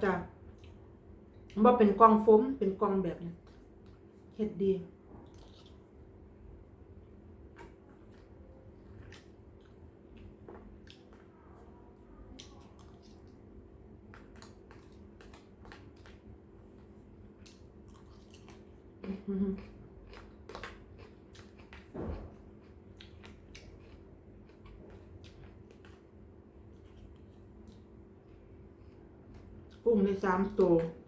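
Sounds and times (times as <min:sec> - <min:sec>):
chewing with mouth clicks: 0:00.4 - 0:01.6, 0:05.2 - 0:06.0, 0:07.5 - 0:29.9.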